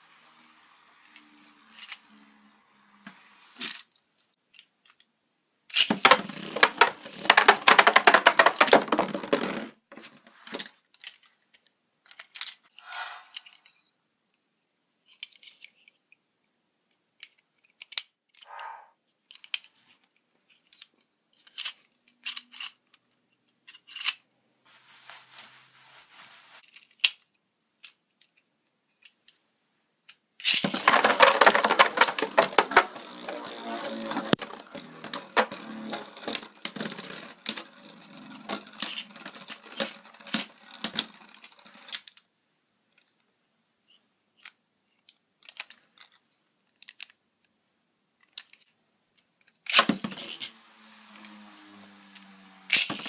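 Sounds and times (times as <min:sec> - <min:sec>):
plastic crackling and rattling: 0:05.7 - 0:12.7, 0:30.4 - 0:42.3.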